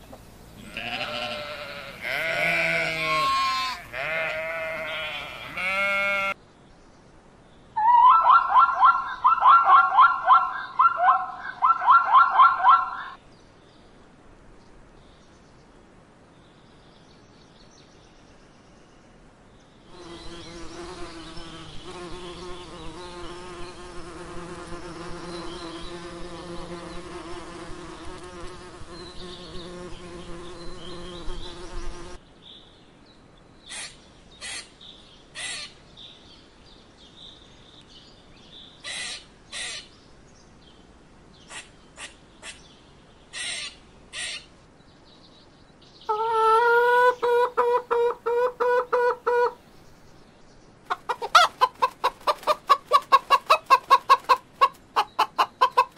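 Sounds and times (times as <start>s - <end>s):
insect buzzing: 19.9s - 32.2s.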